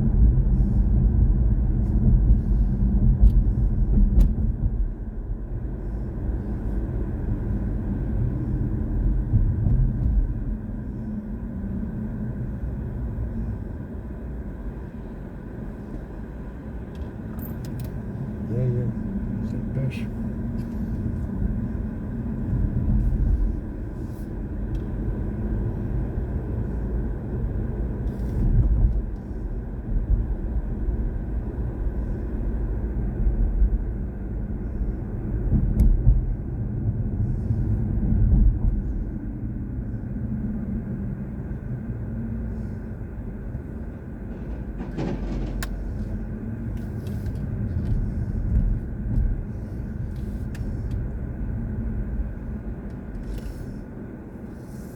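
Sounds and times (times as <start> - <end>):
tyre and road rumble: 14.6 - 54.9.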